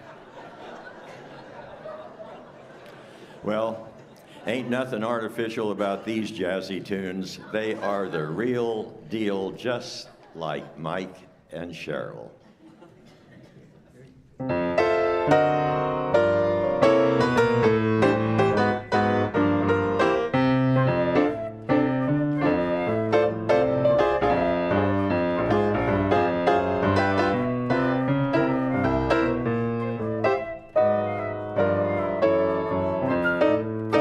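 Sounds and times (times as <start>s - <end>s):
jazzy swing piano: 14.4s - 34.0s.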